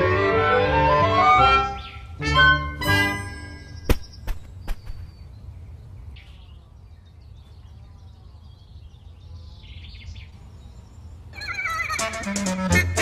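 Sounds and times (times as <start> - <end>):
music: 0.0 - 3.8, 11.4 - 13.0.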